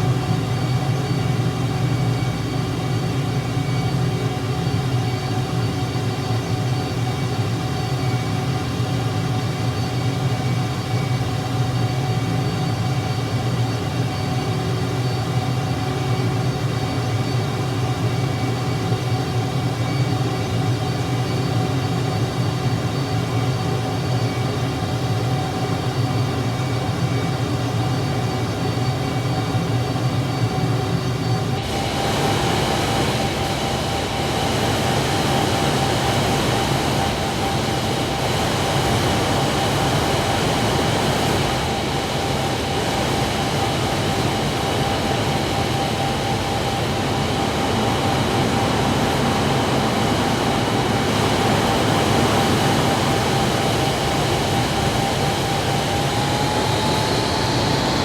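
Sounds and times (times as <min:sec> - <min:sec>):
engine running steadily: 0:17.6 - 0:58.0.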